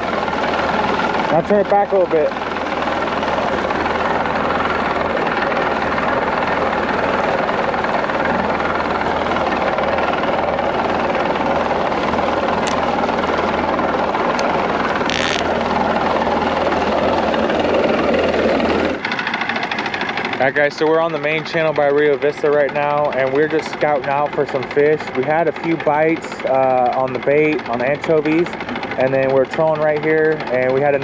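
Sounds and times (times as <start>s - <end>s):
boat motor running: 0.0s - 31.0s
short clicks: 15.1s - 15.5s.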